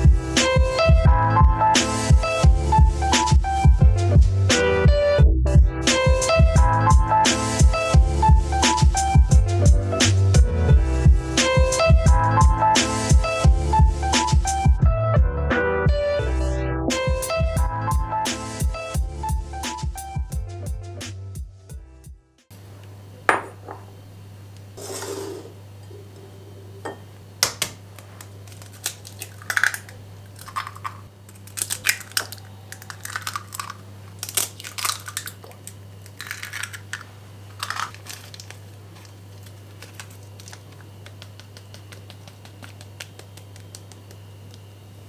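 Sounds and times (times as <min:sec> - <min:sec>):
dishes and cutlery clinking: 0:24.8 - 0:27.2.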